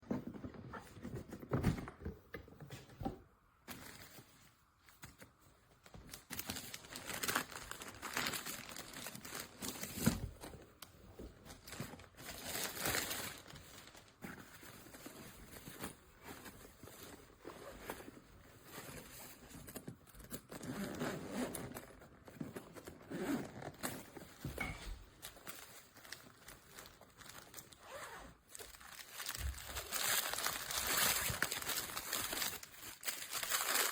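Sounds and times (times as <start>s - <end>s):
rustling and crinkling: 0.0s - 33.9s.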